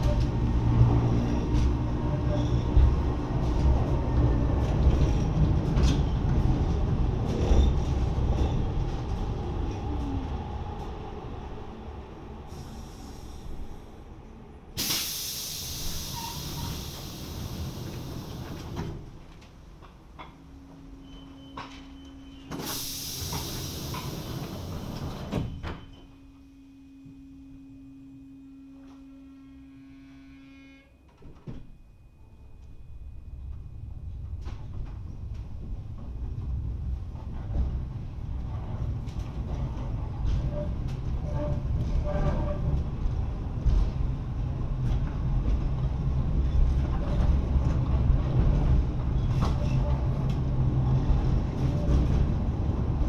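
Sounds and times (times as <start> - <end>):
train wheels rumbling: 0.0 - 26.0, 32.5 - 53.0
air hiss of sliding doors: 12.5 - 14.0, 14.8 - 19.0, 22.5 - 25.8.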